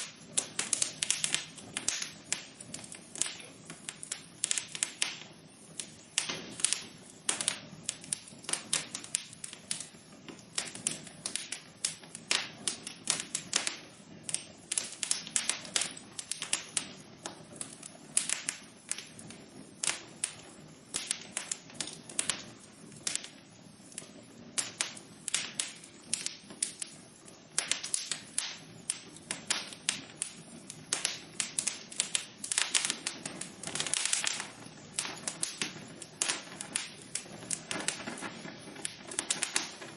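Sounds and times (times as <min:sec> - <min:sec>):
faint steady hiss: 0:00.0 - 0:39.9
wood fire crackling: 0:00.0 - 0:39.9.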